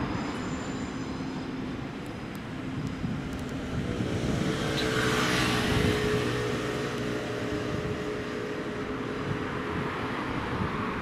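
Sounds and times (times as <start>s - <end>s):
train whine: 0.0s - 4.6s
electric train rumbling past: 0.0s - 11.0s.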